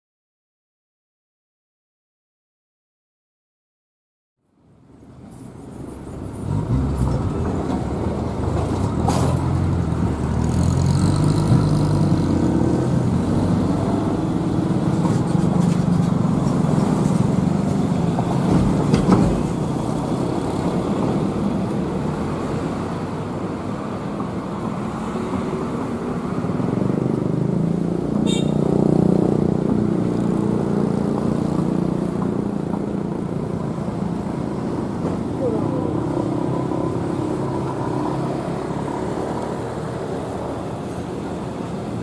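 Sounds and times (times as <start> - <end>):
diesel locomotive engine rumbling: 4.8 - 10.6, 11.2 - 29.0.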